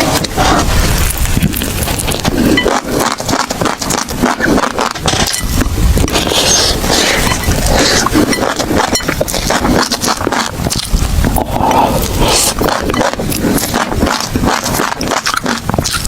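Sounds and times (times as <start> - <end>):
chewing crunchy food: 0.0 - 16.0.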